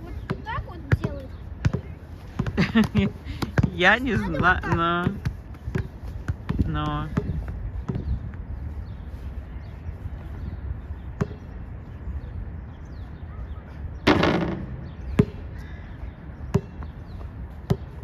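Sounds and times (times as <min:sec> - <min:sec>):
wind on microphone: 0:00.0 - 0:18.0
basketball bouncing: 0:00.3 - 0:08.1, 0:14.1 - 0:15.4, 0:17.6 - 0:18.0.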